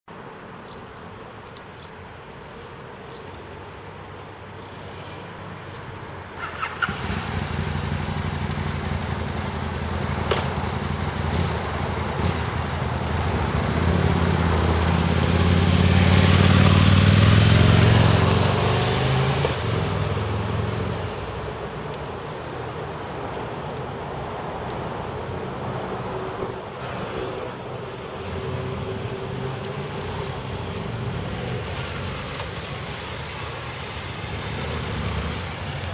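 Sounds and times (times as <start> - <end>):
motorcycle engine starting and revving: 6.4 - 21.5, 29.8 - 35.9.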